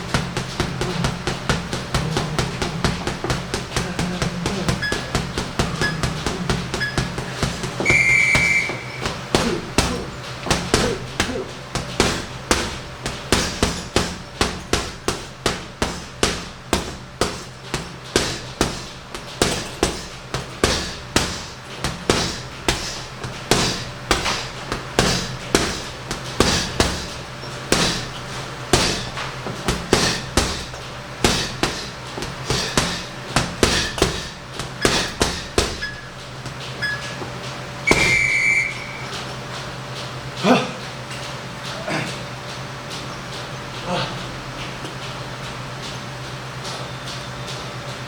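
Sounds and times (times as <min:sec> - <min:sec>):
punches thudding into bag: 0:00.1 - 0:36.7, 0:37.9 - 0:38.3
short high electronic beep: 0:07.9 - 0:09.0, 0:37.9 - 0:39.1.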